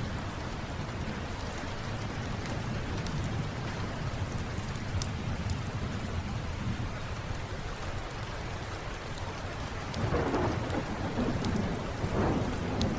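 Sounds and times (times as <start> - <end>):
steady rain: 0.0 - 12.9
thunder rumbling: 10.0 - 12.9.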